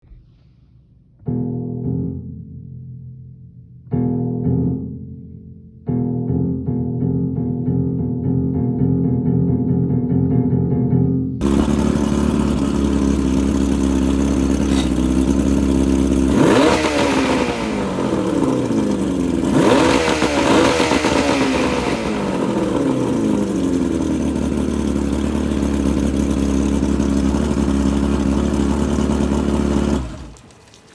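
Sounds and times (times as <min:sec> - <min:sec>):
boat engine passing at speed: 0:11.4 - 0:30.9.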